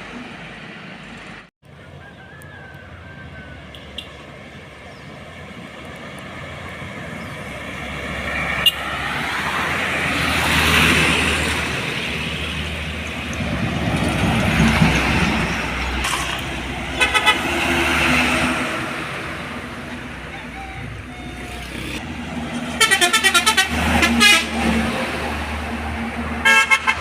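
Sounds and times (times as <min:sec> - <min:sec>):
heavy trucks passing: 0:00.0 - 0:27.0
horn toots: 0:16.9 - 0:18.4, 0:20.2 - 0:22.0, 0:22.6 - 0:25.0, 0:26.4 - 0:27.0.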